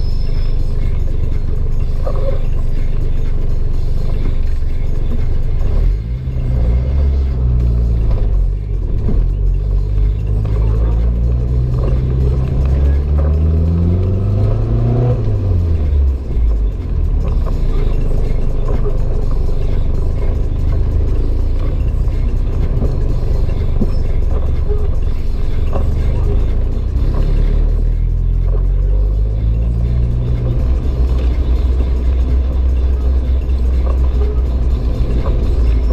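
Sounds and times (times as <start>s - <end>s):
car engine accelerating: 0.0s - 35.9s
engine and road rumble: 0.0s - 35.9s.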